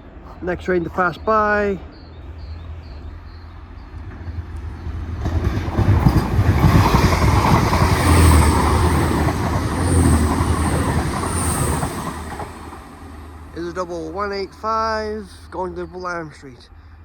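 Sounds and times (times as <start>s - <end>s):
diesel train rumbling past: 0.0s - 17.0s
wheels knocking on track: 4.0s - 13.8s.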